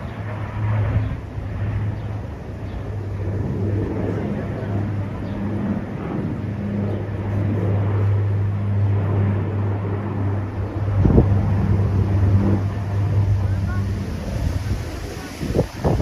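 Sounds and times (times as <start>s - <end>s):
low engine hum: 0.0s - 16.0s
wind noise on microphone: 0.0s - 16.0s.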